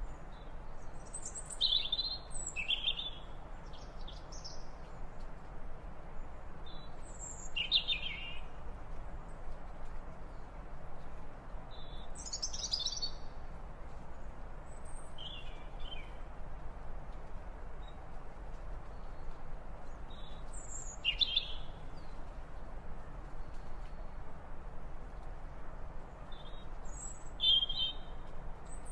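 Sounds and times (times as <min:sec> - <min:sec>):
background hiss: 0:00.0 - 0:28.9.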